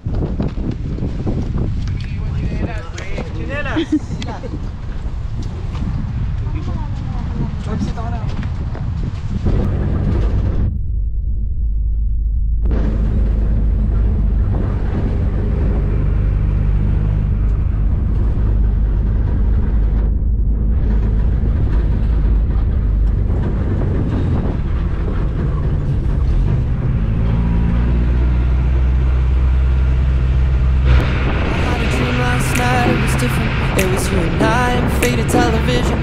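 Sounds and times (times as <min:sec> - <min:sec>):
rushing noise: 0:00.0 - 0:36.0
engine droning: 0:09.2 - 0:36.0.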